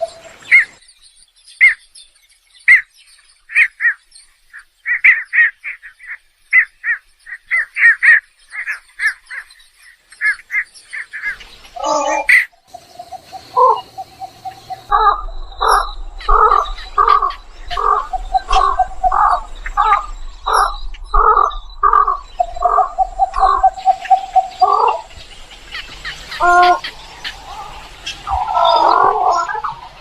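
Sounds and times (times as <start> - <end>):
egret croaking calls: 11.8 - 25.2, 26.0 - 29.9.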